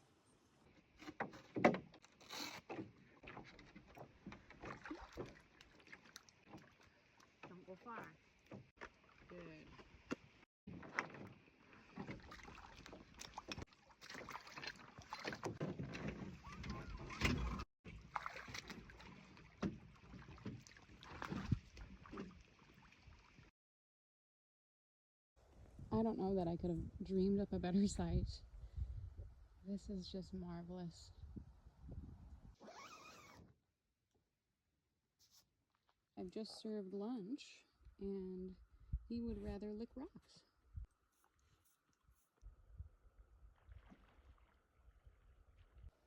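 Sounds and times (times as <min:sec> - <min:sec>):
canoe knocking and scraping: 0:00.8 - 0:09.0, 0:09.6 - 0:22.4.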